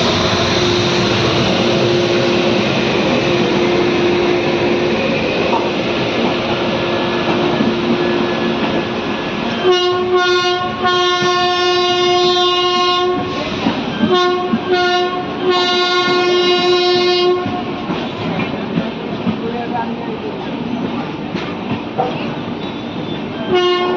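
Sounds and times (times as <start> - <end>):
train rumbling on track: 0.0 - 23.9
locomotive horn blasts: 9.5 - 13.3, 14.0 - 17.7, 23.5 - 23.9.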